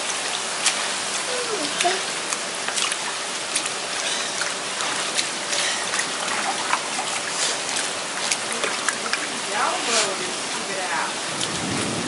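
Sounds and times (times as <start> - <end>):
raindrops splashing: 0.0 - 12.0
rain hissing: 7.2 - 12.0.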